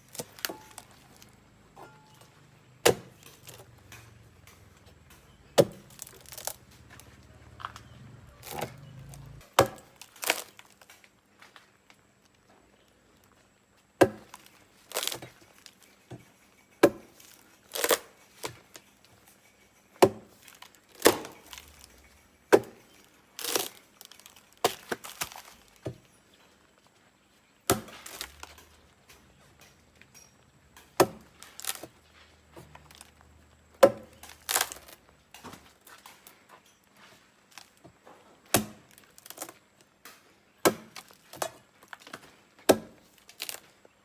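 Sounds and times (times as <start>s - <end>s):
blade chopping plants: 0.0s - 10.9s, 14.0s - 15.4s, 16.8s - 18.6s, 20.0s - 26.1s, 27.6s - 36.3s, 38.5s - 43.7s.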